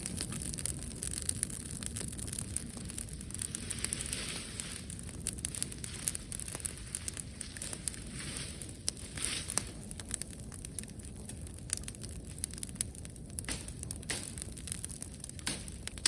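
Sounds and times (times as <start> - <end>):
bonfire crackling and popping: 0.0 - 16.0.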